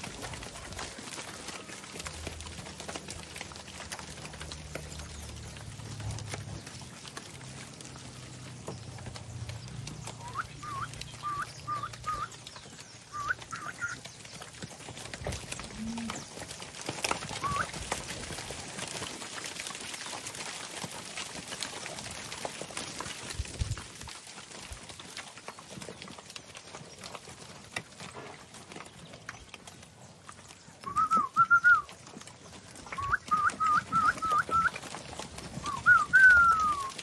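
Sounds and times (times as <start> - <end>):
hooves knocking and shuffling: 0.0 - 37.0.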